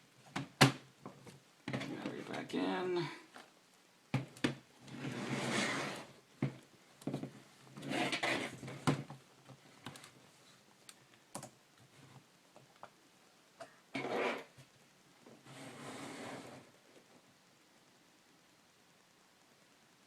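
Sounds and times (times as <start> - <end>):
plastic sliding and scraping: 4.2 - 10.6, 13.9 - 17.2.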